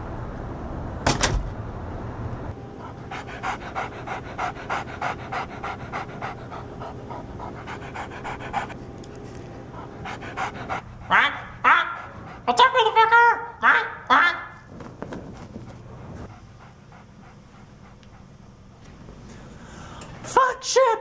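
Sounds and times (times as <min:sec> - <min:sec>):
person imitating dog panting: 0:02.8 - 0:08.8, 0:09.7 - 0:14.4.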